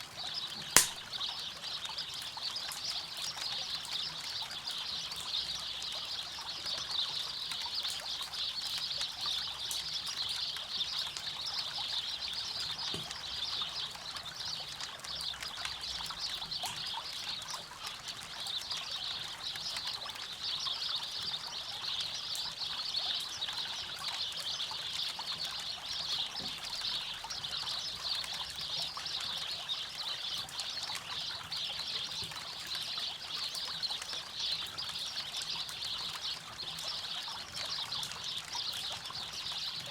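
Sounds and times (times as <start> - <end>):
river water trickling: 0.1 - 39.9
campfire crackling: 0.8 - 1.1.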